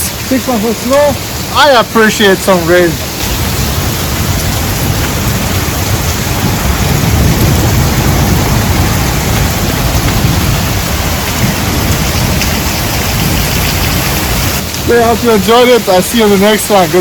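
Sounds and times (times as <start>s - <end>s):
heavy rain pouring: 0.0s - 17.0s
deep low rumble: 3.2s - 14.9s.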